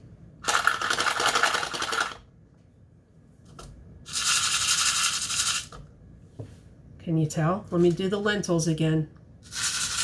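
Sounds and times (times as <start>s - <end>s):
coins rattling in plastic cup: 0.4s - 2.2s, 4.1s - 5.7s, 9.4s - 10.0s
lentils rattling in plastic cup: 4.1s - 5.7s, 9.4s - 10.0s.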